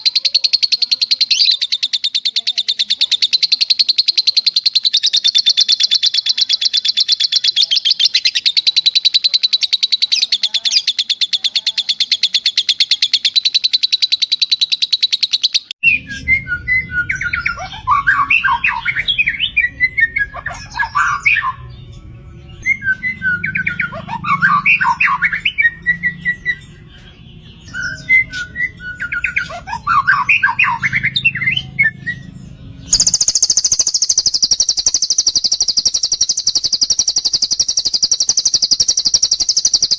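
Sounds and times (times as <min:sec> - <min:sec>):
songbird trilling: 0:00.0 - 0:39.9
bird chirps and whistles: 0:12.8 - 0:21.7, 0:22.6 - 0:26.7, 0:27.6 - 0:32.3, 0:32.9 - 0:39.9.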